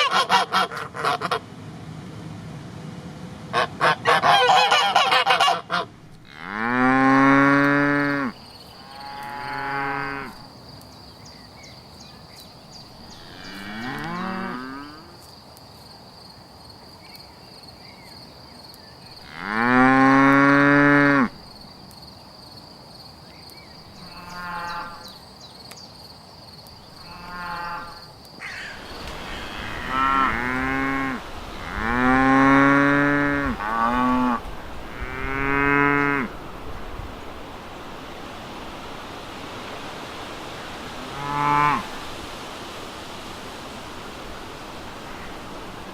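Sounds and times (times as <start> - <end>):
cattle mooing: 6.2 - 8.3, 8.9 - 10.4, 13.2 - 15.1, 29.3 - 36.3.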